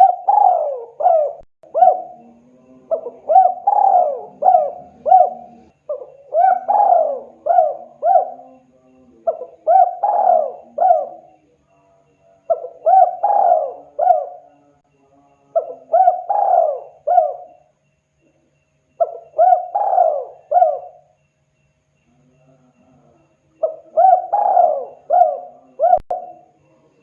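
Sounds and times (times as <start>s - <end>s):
dove cooing: 0.0s - 11.4s, 12.5s - 14.7s, 15.5s - 17.7s, 19.0s - 21.2s, 23.6s - 26.6s.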